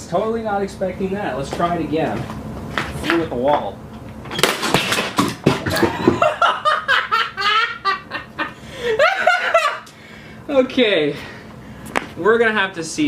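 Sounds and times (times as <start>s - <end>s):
clatter of sharp knocks: 4.3s - 6.2s
person laughing hard: 5.6s - 9.9s.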